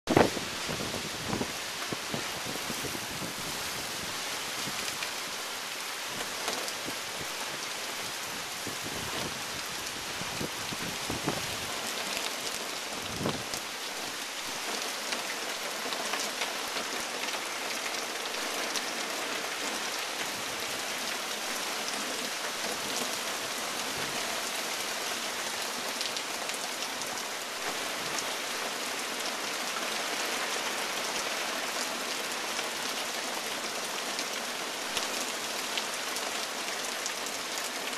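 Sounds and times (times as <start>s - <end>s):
wind gusts on microphone: 0.1s - 5.0s, 8.2s - 11.8s, 12.9s - 13.6s.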